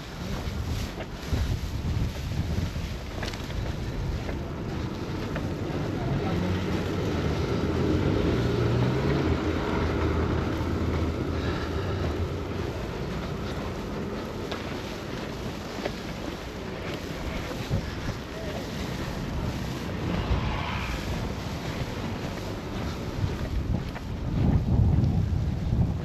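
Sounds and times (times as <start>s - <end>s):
wind buffeting microphone: 0.0s - 26.0s
vehicle engine passing: 5.4s - 13.8s, 18.5s - 23.9s.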